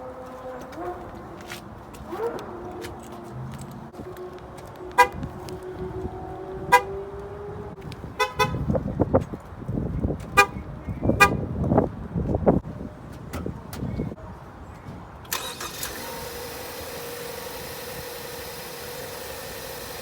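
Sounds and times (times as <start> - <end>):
car horn chirps: 5.0 - 5.2, 6.7 - 7.0, 8.2 - 8.7, 10.4 - 11.4
car engine starting and rumbling: 15.2 - 20.0.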